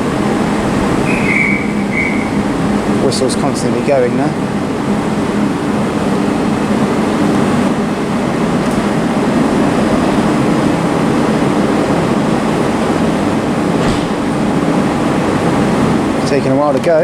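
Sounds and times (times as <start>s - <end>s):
train equipment humming: 0.0s - 17.0s.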